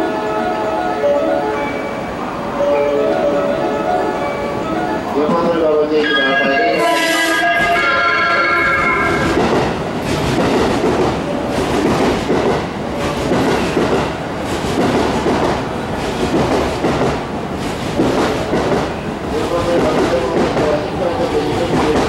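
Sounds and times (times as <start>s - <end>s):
pitched tone: 5.9s - 9.7s.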